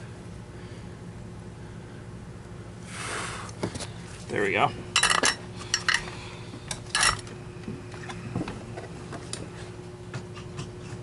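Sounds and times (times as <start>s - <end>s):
metal tools clinking on workbench: 5.0s - 6.0s.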